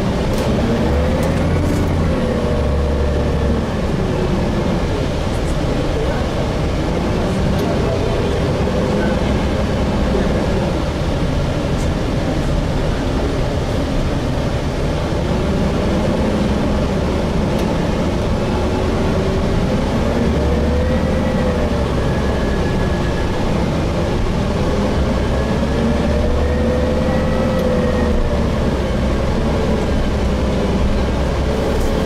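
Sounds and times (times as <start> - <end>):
faint drivetrain whine: 0.0 - 11.8, 15.0 - 32.0
bus engine and road rumble: 0.0 - 32.0.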